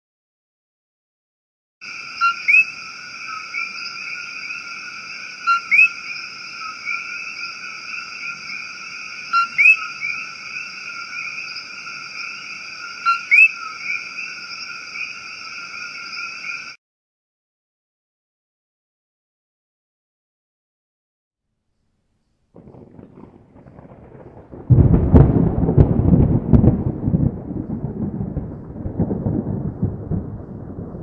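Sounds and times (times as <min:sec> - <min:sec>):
chorus of night animals: 0:01.8 - 0:16.8
pips and rising whistle call: 0:05.5 - 0:06.0, 0:09.3 - 0:10.2, 0:13.0 - 0:13.7.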